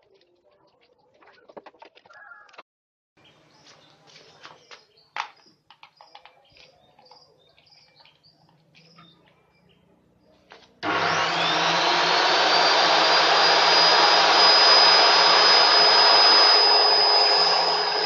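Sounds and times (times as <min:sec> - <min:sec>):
small bird chirping: 0:03.2 - 0:10.7.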